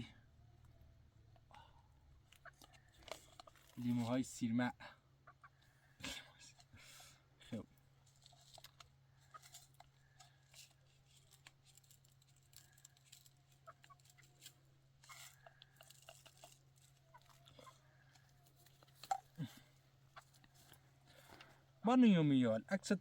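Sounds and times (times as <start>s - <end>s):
faint clicks and handling sounds: 0.6s - 4.2s, 8.0s - 21.7s.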